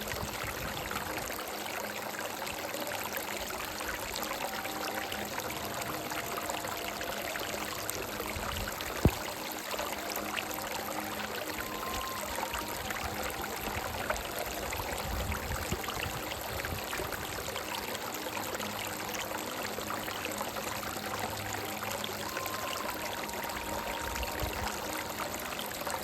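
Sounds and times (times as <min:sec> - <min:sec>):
soft melody of held notes: 0:00.0 - 0:26.0
stream running over rocks: 0:00.0 - 0:26.0.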